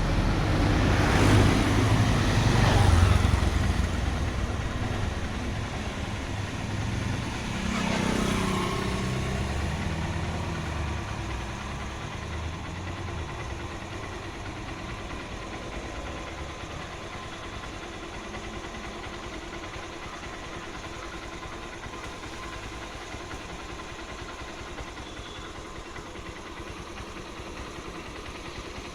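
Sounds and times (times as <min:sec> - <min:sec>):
vehicle passing close: 0:00.0 - 0:14.6
engine hum: 0:00.0 - 0:28.9.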